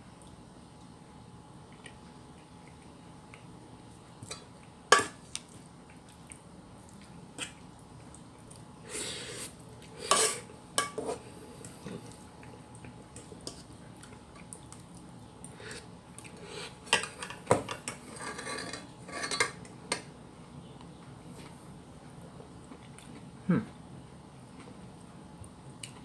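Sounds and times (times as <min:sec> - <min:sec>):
cutlery scraping: 0:04.9 - 0:05.2, 0:10.0 - 0:11.3, 0:16.9 - 0:20.0
cutlery clinking on a plate: 0:05.0 - 0:05.2, 0:16.9 - 0:20.1.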